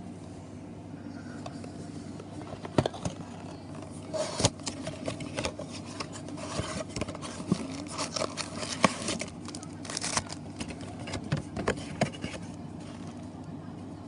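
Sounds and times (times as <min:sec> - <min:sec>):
steady low hum: 0:00.0 - 0:14.0
crinkling plastic wrap: 0:06.4 - 0:11.1.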